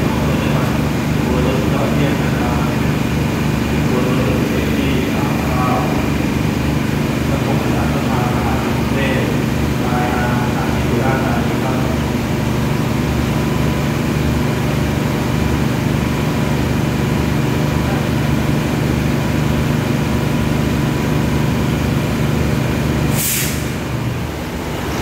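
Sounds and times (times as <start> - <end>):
diesel engine idling: 0.0 - 25.0
air brake hiss: 23.1 - 23.8.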